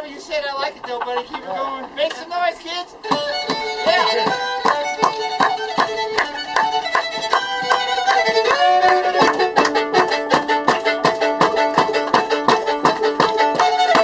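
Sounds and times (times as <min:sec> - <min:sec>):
fiddle playing lively tune: 0:00.3 - 0:14.0
sharp percussive strikes: 0:03.0 - 0:14.0.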